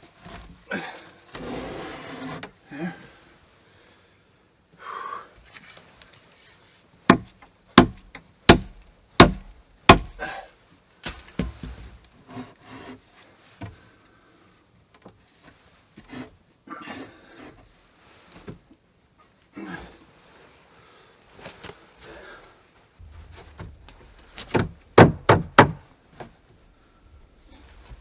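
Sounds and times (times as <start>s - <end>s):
wood scraping: 1.2s - 2.5s
sharp loud blows on wood: 7.1s - 10.3s.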